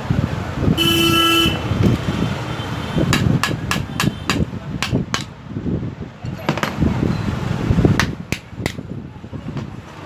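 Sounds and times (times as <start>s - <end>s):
vehicle horn: 0.8s - 3.0s
sharp metallic taps: 3.0s - 5.4s, 8.0s - 8.8s.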